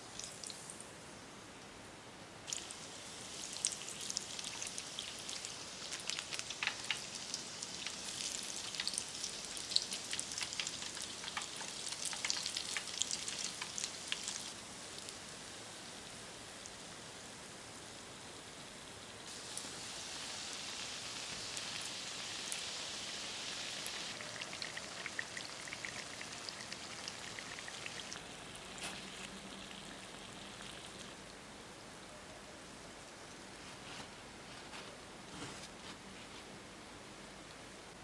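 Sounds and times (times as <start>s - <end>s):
donuts frying in hot oil: 0.0s - 0.9s, 2.4s - 31.9s.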